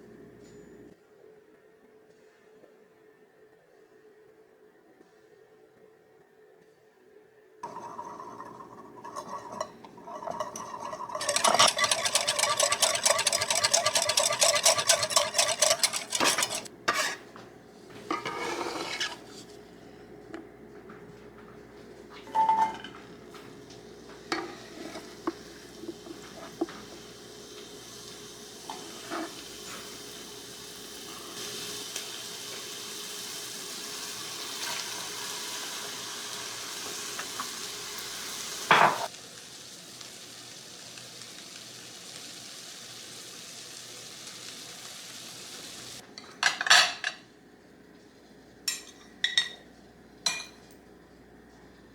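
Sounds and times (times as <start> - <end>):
food sizzling in a hot pan: 7.6 - 17.2, 23.4 - 46.0
utensils clattering against a bowl: 7.6 - 17.3, 18.0 - 19.5, 22.2 - 23.5, 24.1 - 27.1, 38.7 - 39.1, 46.2 - 47.2.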